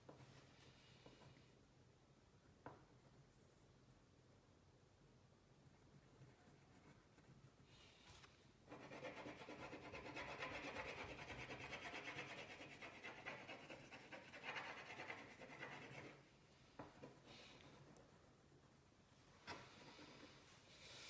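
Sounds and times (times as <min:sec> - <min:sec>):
colouring on paper: 0:08.7 - 0:16.2.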